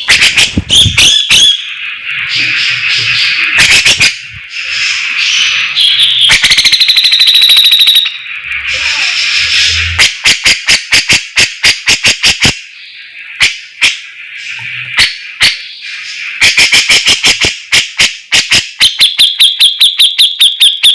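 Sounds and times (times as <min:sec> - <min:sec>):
bird rattling trill: 0:00.0 - 0:08.2
bird sharp repeated chips: 0:00.0 - 0:08.2, 0:16.4 - 0:20.9
bird buzzy chattering: 0:00.0 - 0:12.7.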